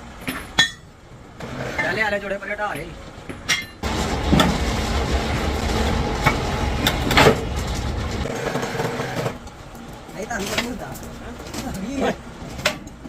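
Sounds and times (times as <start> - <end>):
heavy machine rumbling: 3.8 - 12.6.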